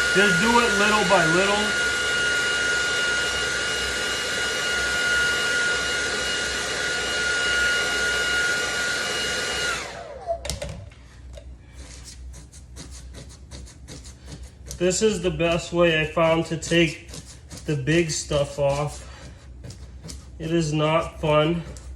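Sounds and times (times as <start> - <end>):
electric blower running with whine: 0.0 - 10.6
fingers rubbing and scratching surface: 11.8 - 21.9.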